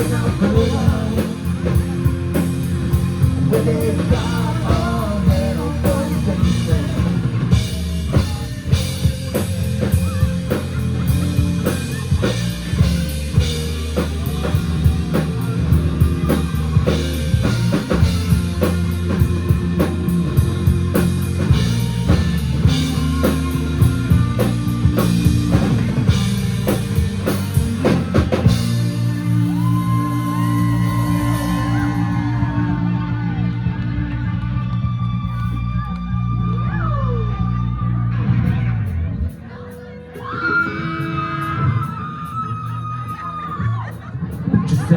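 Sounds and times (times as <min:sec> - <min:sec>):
drum kit: 0:00.0 - 0:33.5
bass guitar: 0:00.0 - 0:44.9
electric guitars: 0:00.0 - 0:44.9.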